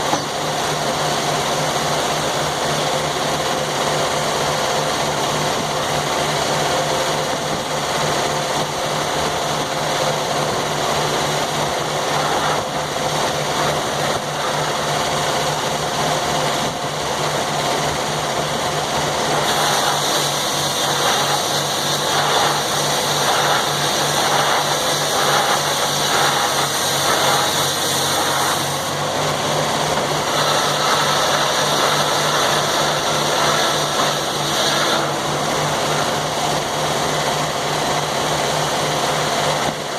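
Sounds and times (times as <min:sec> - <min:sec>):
sawmill engine running: 0:00.0 - 0:39.9
saw cutting into log: 0:11.5 - 0:16.8, 0:19.0 - 0:37.2.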